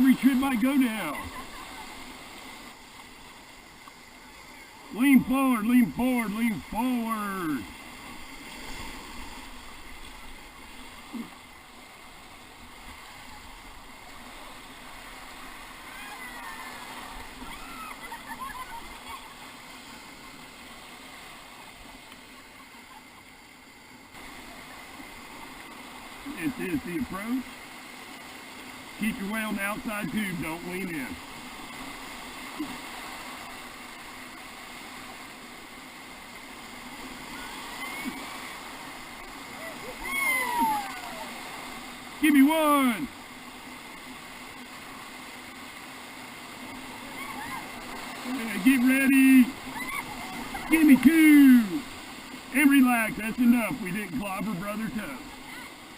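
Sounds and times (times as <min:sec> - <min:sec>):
river whitewater rushing: 0:00.0 - 0:55.9.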